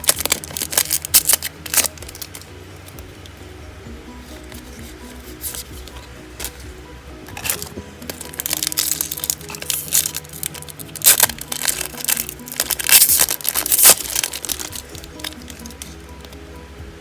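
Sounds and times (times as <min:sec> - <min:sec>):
foil wrapper crinkling: 0:00.0 - 0:02.6, 0:07.4 - 0:16.3
background music: 0:00.0 - 0:17.0.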